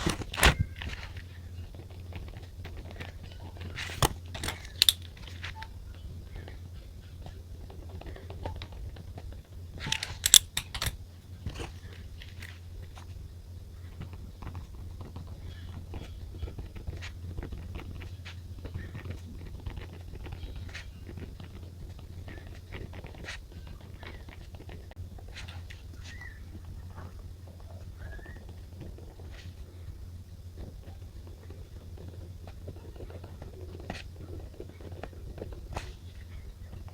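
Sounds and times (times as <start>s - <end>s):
low steady hum: 0.0s - 36.9s
sharp clicks: 3.8s - 5.2s, 9.8s - 11.0s.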